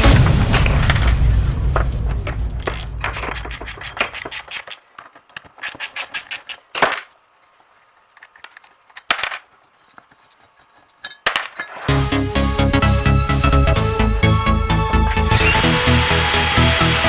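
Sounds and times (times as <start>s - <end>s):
hand tools clicking and scraping: 2.2s - 11.9s, 15.2s - 17.0s.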